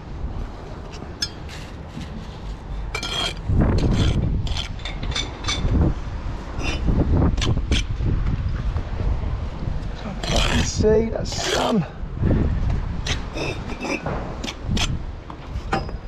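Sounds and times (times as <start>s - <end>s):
trowel clinking on bricks: 1.2s - 1.7s, 2.9s - 5.7s.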